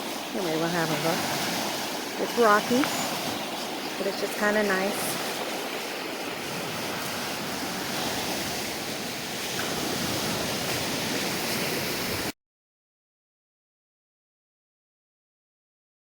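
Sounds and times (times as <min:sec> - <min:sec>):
waves washing on rocky shore: 0:00.0 - 0:12.3
wind: 0:00.0 - 0:12.4.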